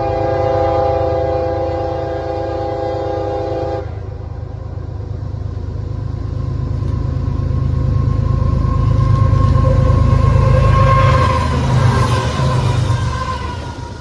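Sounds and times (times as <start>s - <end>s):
train horn chord: 0.0s - 4.4s, 8.7s - 13.5s
diesel locomotive rumble: 0.0s - 14.0s.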